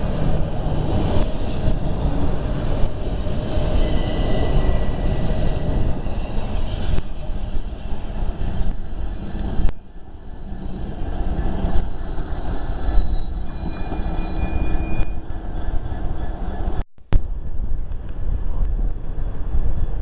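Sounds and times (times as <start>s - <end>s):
high-pitched rail squeals: 0.0s - 16.8s
train rumbling: 0.0s - 20.0s.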